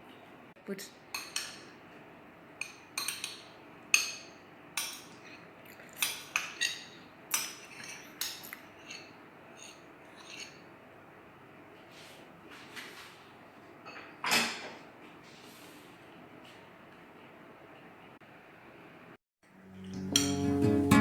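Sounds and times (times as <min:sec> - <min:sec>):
utensil clinking against a dish: 0:01.1 - 0:01.8, 0:02.6 - 0:10.7, 0:20.0 - 0:20.6.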